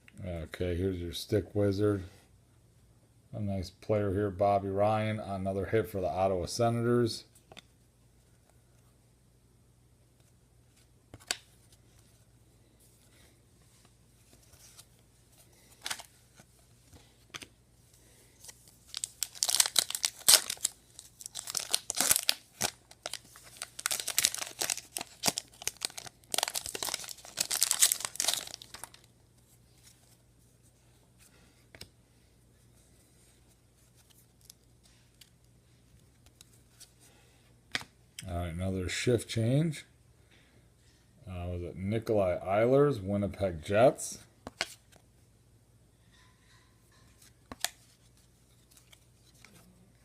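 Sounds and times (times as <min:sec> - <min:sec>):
foil wrapper tearing and crinkling: 0:18.9 - 0:29.1.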